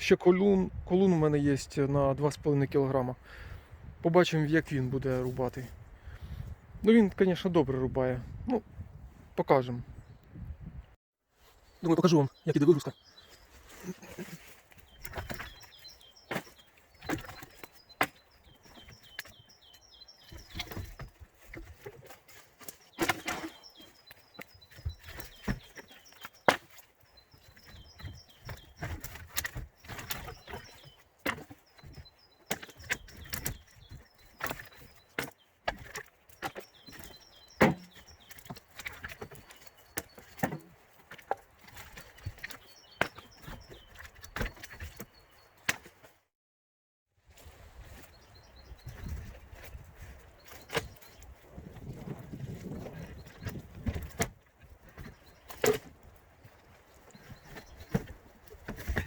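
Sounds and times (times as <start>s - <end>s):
faint bird chirping: 11.4s - 45.7s, 47.4s - 59.0s
firewood logs knocking: 14.8s - 45.9s, 48.8s - 59.0s.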